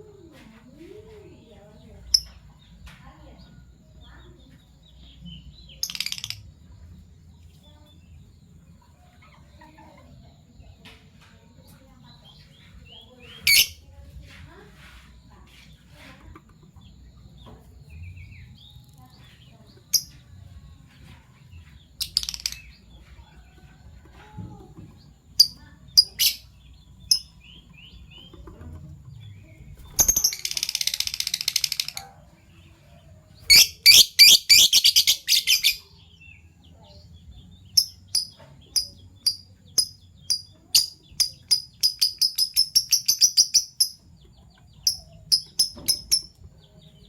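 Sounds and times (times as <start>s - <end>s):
lovebirds chirping: 0.0s - 47.0s
harsh rattling chatter: 18.6s - 35.8s.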